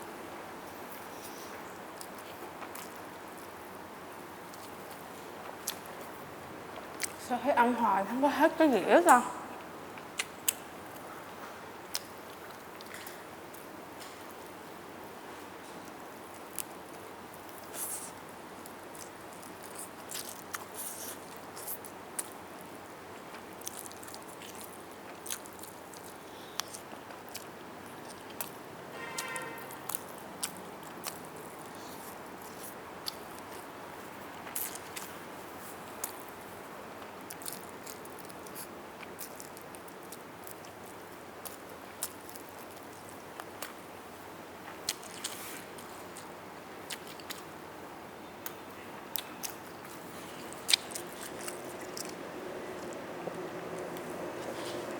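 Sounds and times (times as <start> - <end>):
background hiss: 0.0 - 54.9
mouth clicks and smacks: 10.0 - 10.7, 46.9 - 47.5, 48.4 - 53.1
chewing and biting chicken: 17.3 - 22.5, 23.3 - 28.6, 29.2 - 33.7, 34.4 - 36.4, 37.2 - 43.8, 44.8 - 47.5, 48.4 - 54.9.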